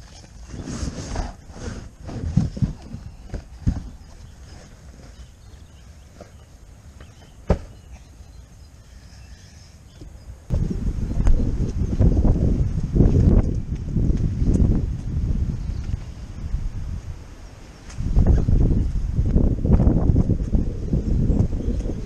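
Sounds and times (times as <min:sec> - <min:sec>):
footsteps outdoors: 0:00.0 - 0:08.3, 0:09.9 - 0:17.0.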